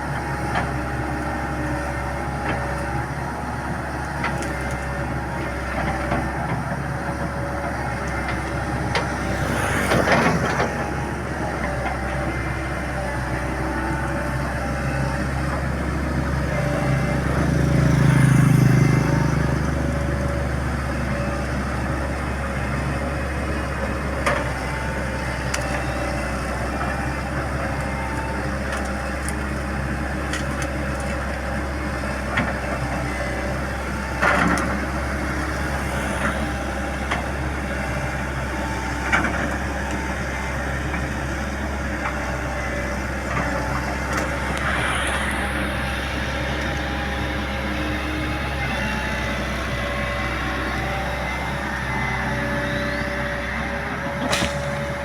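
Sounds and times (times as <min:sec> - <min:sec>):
excavator engine running: 0:00.0 - 0:55.0
tree roots knocking and cracking: 0:54.2 - 0:55.0.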